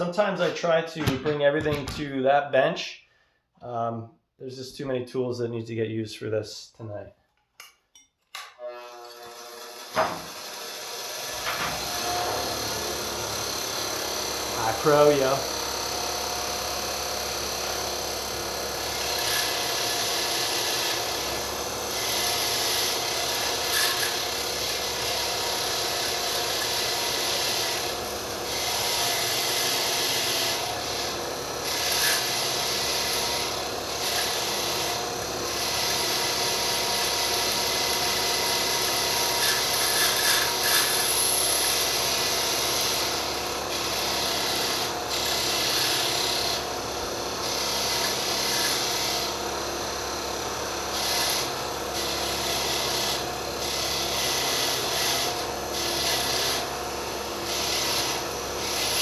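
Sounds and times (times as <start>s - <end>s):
metal blades scratching on wire wheel: 23.6s - 24.2s, 39.4s - 41.4s.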